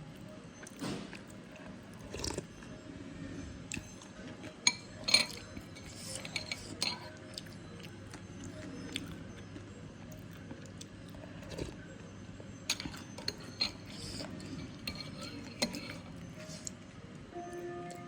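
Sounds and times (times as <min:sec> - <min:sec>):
cutlery clinking against a bowl: 0:03.7 - 0:07.6, 0:12.6 - 0:16.8.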